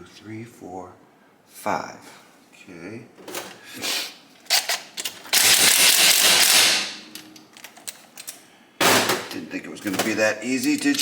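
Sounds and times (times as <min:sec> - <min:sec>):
ratchet wrench rapid rattle: 0:05.3 - 0:06.8.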